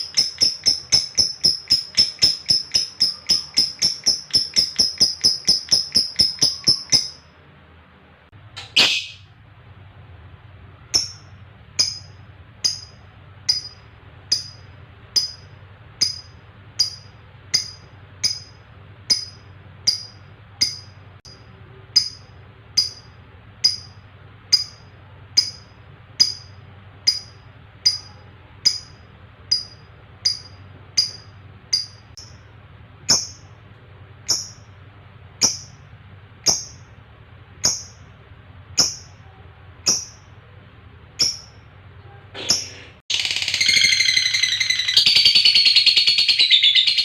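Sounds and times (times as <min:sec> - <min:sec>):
bird chirping: 0:00.0 - 0:07.4, 0:08.6 - 0:09.3, 0:42.4 - 0:47.0.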